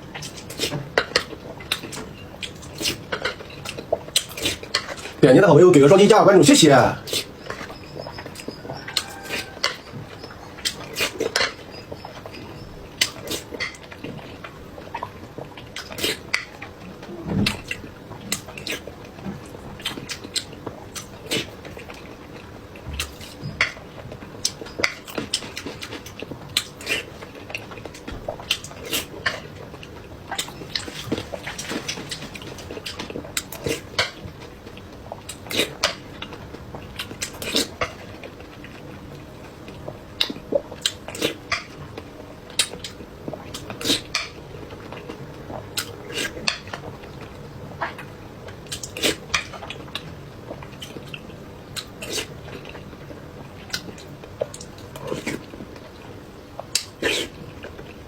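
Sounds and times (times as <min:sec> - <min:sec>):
wet chewing and mouth smacks: 0:53.6 - 0:58.0.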